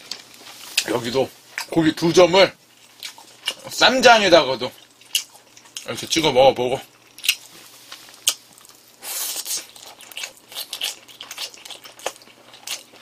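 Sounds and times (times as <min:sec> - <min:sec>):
wet chewing with clicks: 0:02.8 - 0:03.8, 0:04.7 - 0:06.0, 0:06.8 - 0:13.0.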